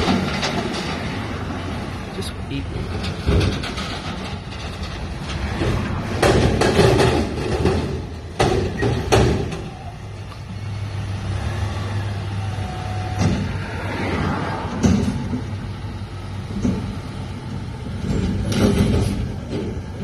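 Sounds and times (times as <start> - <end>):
metal clanks and bangs: 0.0 - 10.0, 14.6 - 20.0
garbage truck engine running: 0.0 - 13.9, 14.5 - 20.0.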